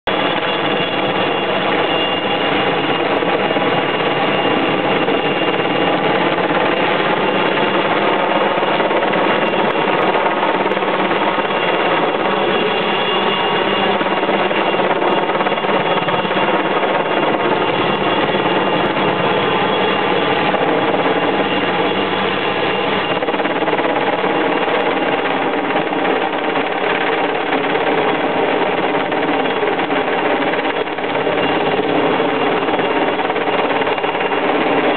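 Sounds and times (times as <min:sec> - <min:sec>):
helicopter running: 0:00.1 - 0:34.9.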